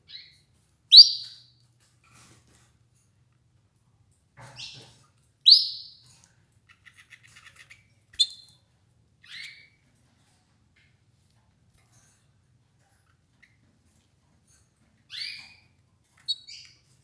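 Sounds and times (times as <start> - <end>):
canaries calling and chirping: 0.1 - 1.4, 4.4 - 8.6, 15.1 - 17.0.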